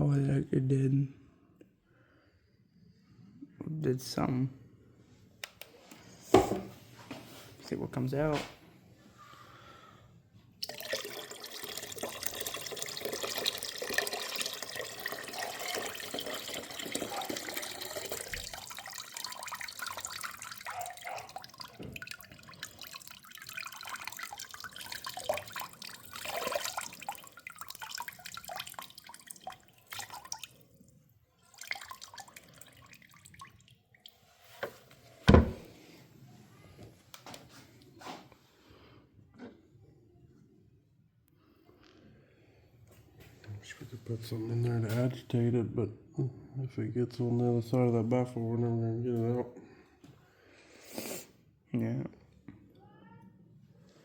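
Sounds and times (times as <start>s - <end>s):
water pouring and dripping: 10.6s - 35.5s.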